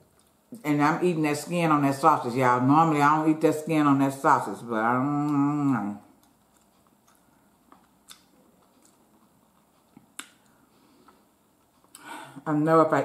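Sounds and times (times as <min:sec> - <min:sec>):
faint chewing: 0:00.0 - 0:00.6, 0:05.2 - 0:12.2
soft mouth clicks: 0:06.2 - 0:11.2.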